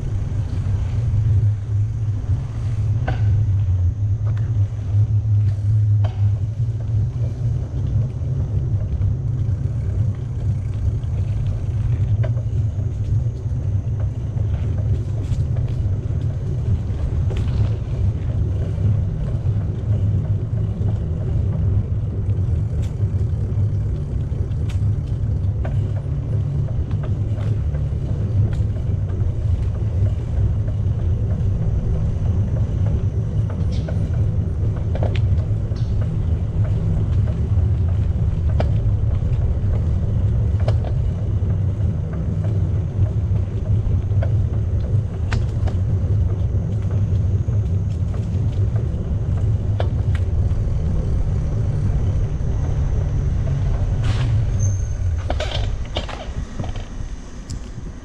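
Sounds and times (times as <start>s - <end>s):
bicycle riding rumble: 0.0s - 58.0s
faint clicks and rattles: 0.0s - 58.0s
wind on microphone: 0.0s - 58.0s.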